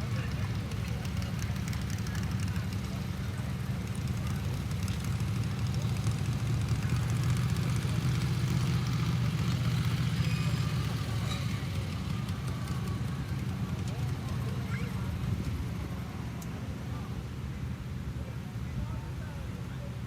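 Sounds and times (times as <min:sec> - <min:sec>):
garden tractor engine running: 0:00.0 - 0:18.2.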